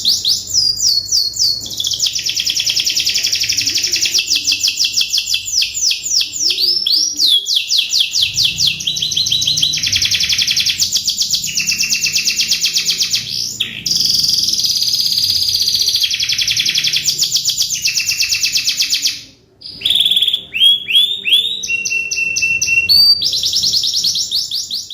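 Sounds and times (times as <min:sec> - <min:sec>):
canary singing trills: 0:00.0 - 0:24.9.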